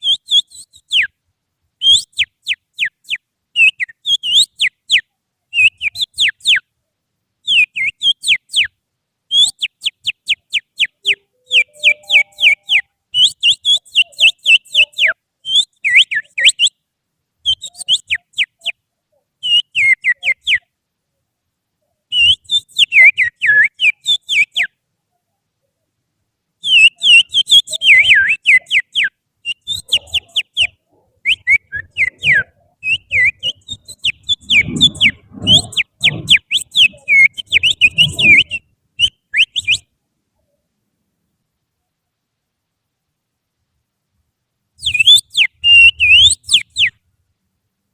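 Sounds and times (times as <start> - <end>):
finger whistling birdsong: 0.0 - 1.1, 1.8 - 5.0, 5.6 - 6.6, 7.5 - 8.7, 9.3 - 16.8, 17.5 - 18.8, 19.4 - 20.7, 22.1 - 24.7, 26.6 - 39.9, 44.8 - 47.0.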